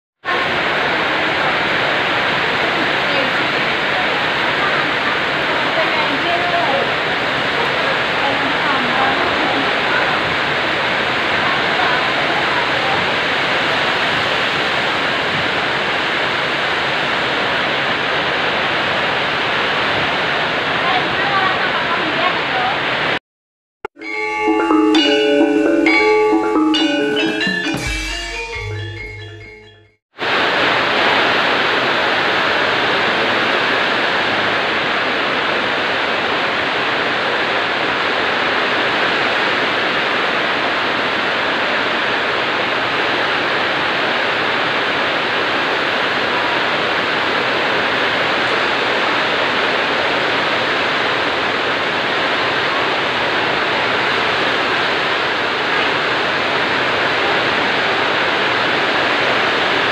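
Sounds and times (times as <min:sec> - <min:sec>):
heavy rain: 0:00.2 - 0:23.2, 0:30.1 - 0:59.9
bright musical jingle: 0:24.0 - 0:30.0.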